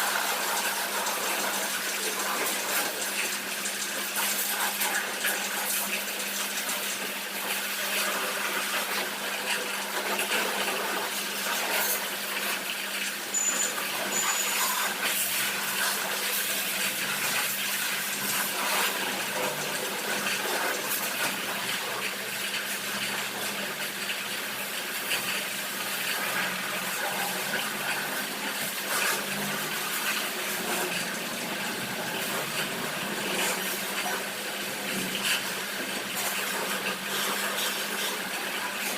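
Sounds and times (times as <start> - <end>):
water spraying hiss: 0.0 - 9.2
pump motor humming: 0.0 - 38.9.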